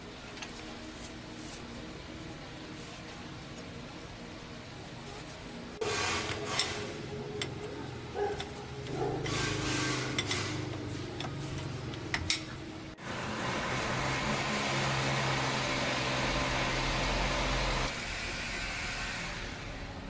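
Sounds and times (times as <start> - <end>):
steady background hum: 0.0 - 13.2
metal tools clinking and scraping: 6.3 - 12.6.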